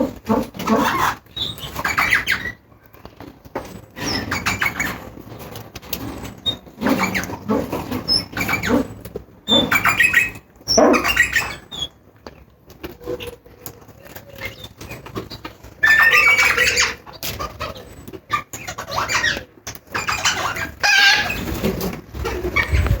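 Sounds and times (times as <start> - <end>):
parakeet squawking: 0.3 - 2.6, 9.5 - 11.9, 15.8 - 21.5.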